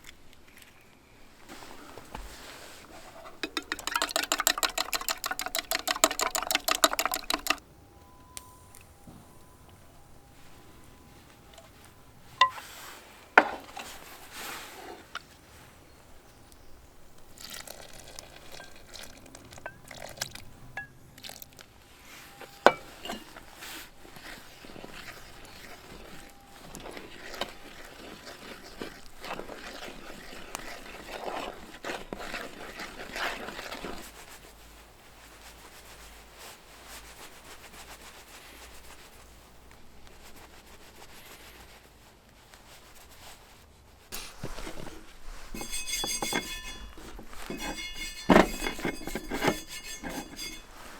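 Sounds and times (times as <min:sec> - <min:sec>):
cookware clinking and scraping: 0:01.6 - 0:07.6, 0:11.5 - 0:15.3, 0:17.4 - 0:21.4, 0:22.1 - 0:34.0, 0:44.2 - 0:50.9.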